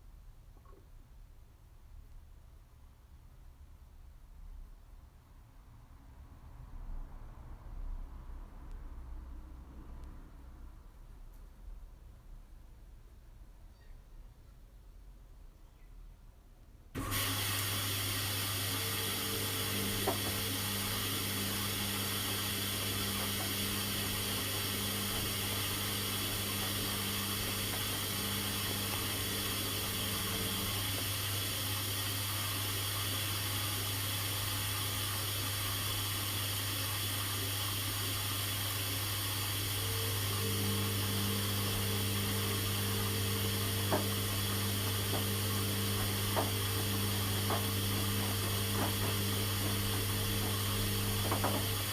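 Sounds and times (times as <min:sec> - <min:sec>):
higher motor hum: 0:17.0 - 0:32.8, 0:39.5 - 0:51.9
washing machine water rushing: 0:17.0 - 0:51.9.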